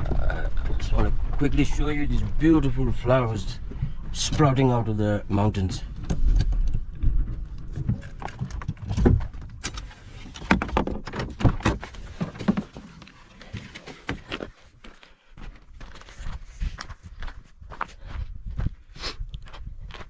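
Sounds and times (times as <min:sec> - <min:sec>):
footsteps walking: 0:11.8 - 0:20.0.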